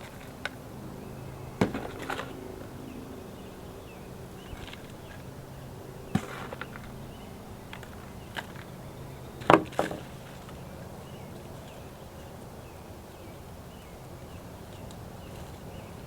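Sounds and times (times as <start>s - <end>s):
knocks of hard objects: 1.6s - 2.3s, 6.1s - 6.9s.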